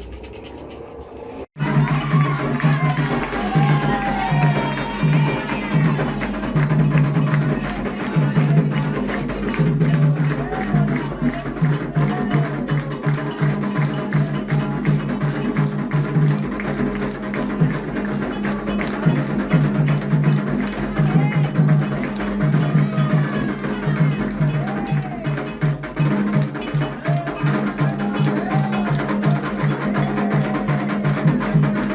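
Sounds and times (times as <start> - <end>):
voices singing: 1.6 - 15.2
hand drums: 1.6 - 31.9
struck bell-like instrument: 1.6 - 31.9.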